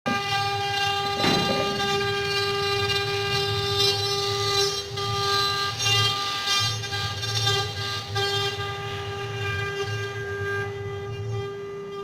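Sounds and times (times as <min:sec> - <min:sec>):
cutter working wood: 0:00.1 - 0:10.4
router spindle high whine: 0:00.1 - 0:12.0
knock: 0:01.1 - 0:02.5.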